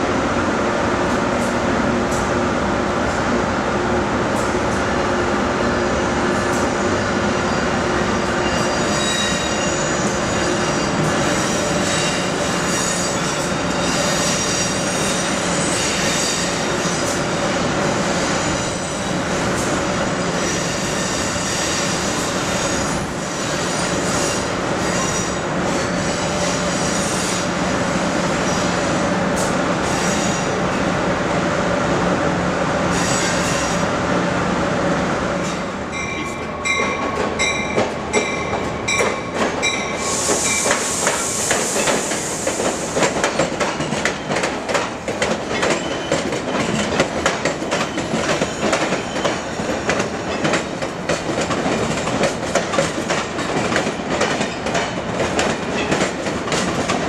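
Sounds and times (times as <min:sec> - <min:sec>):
train rumbling on rails: 0:00.0 - 0:57.0
high-pitched wheel squeals: 0:08.4 - 0:16.7.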